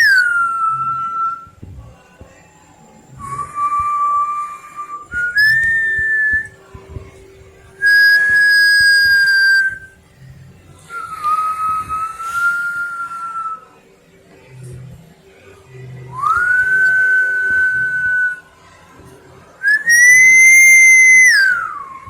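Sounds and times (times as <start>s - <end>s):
long whistled notes: 0.0s - 1.6s, 2.9s - 6.6s, 7.8s - 10.0s, 10.8s - 13.8s, 16.1s - 18.5s, 19.6s - 22.0s.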